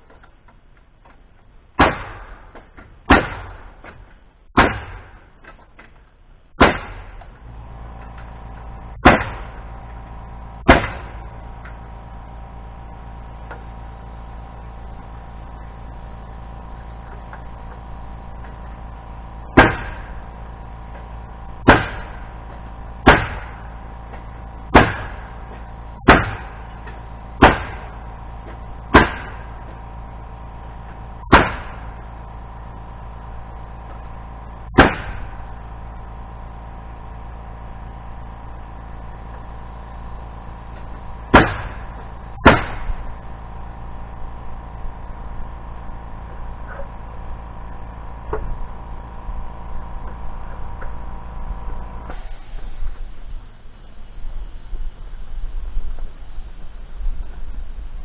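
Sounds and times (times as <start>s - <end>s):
sharp impacts on timber: 0.0s - 12.0s, 16.6s - 30.2s, 30.8s - 32.3s, 33.8s - 36.2s, 40.6s - 43.3s, 48.3s - 48.6s.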